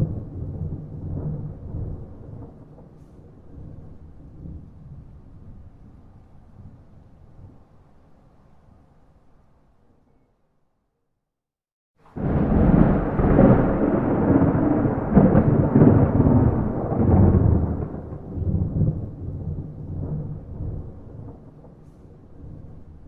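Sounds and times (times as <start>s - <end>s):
rumbling thunder clap: 0.0s - 5.9s, 12.1s - 23.0s.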